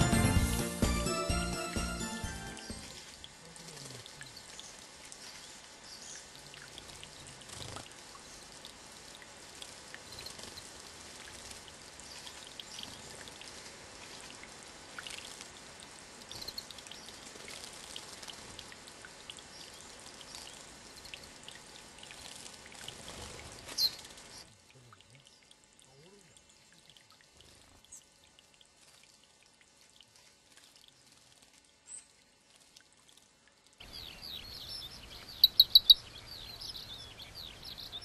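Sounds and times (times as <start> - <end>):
water trickling and splashing: 2.7 - 37.8
faint high chirps: 33.8 - 38.0.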